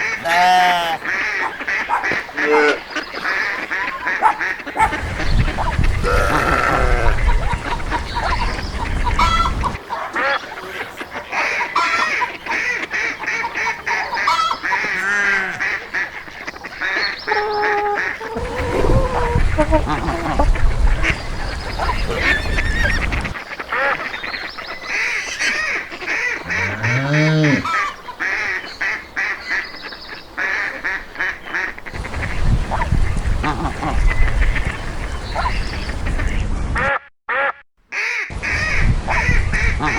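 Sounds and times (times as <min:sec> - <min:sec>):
geese honking: 0:00.0 - 0:29.7, 0:30.4 - 0:39.9
ducks quacking: 0:00.0 - 0:39.9
low rising and falling animal calls: 0:04.8 - 0:09.8, 0:17.2 - 0:23.4, 0:26.4 - 0:27.9
low rumbling noise: 0:18.2 - 0:23.3.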